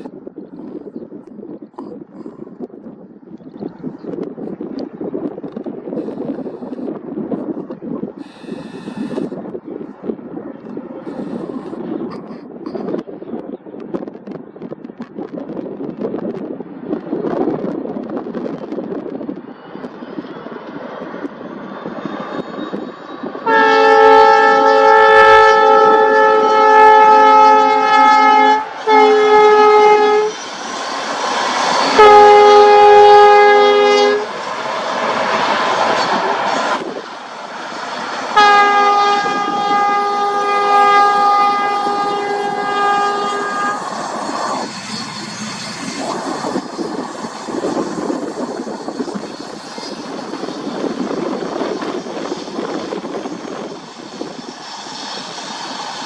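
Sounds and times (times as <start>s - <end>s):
train chord horn blasts: 23.4s - 30.4s, 31.8s - 34.4s, 38.3s - 44.8s.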